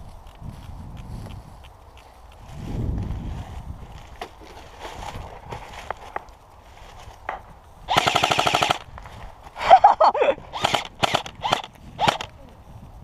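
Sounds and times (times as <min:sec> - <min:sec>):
airsoft rifle firing: 0:07.9 - 0:08.9, 0:10.5 - 0:12.3.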